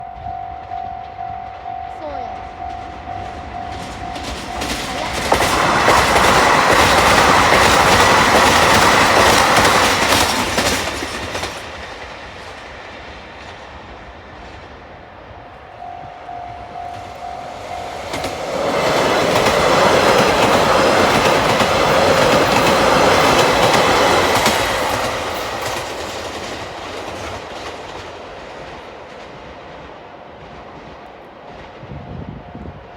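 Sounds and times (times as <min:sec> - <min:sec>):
crossing warning bell ringing: 0:00.0 - 0:09.6, 0:15.6 - 0:26.1
trains clattering over rails: 0:00.0 - 0:32.9.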